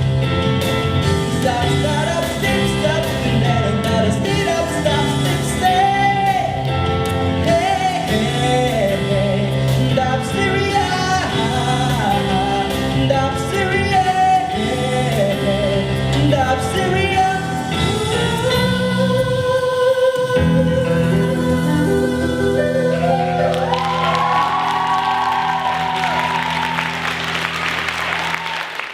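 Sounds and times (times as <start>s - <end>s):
band accompaniment: 0.0s - 19.4s
person singing: 1.0s - 27.1s.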